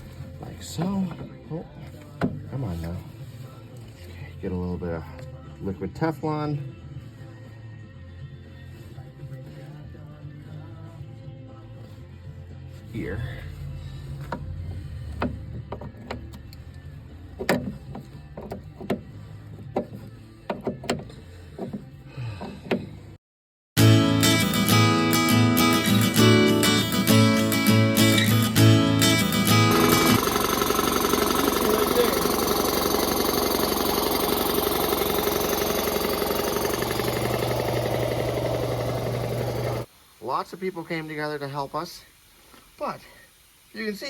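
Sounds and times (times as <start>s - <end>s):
acoustic guitar music: 23.8s - 39.8s
engine idling with chugging pulse: 29.4s - 39.8s.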